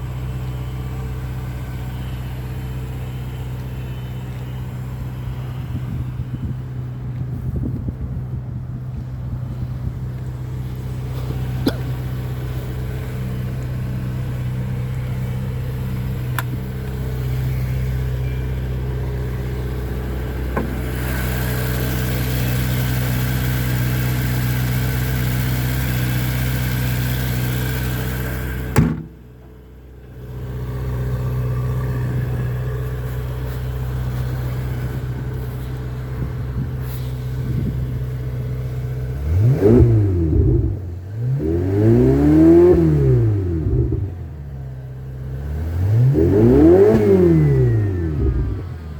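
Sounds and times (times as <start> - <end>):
car engine idling: 0.0 - 41.5, 42.7 - 48.9
sharp knock: 28.8 - 29.2.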